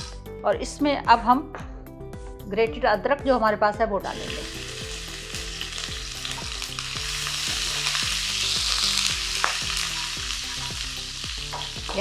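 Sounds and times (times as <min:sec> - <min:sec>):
ginger sizzling in hot fat: 0:00.0 - 0:00.3, 0:04.1 - 0:12.0.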